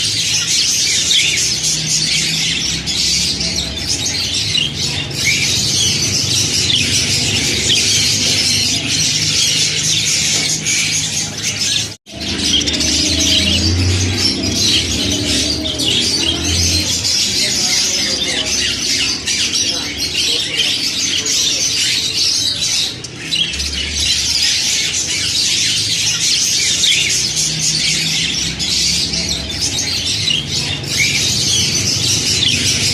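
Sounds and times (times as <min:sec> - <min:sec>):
budgerigars chattering and squawking: 0:00.0 - 0:32.9.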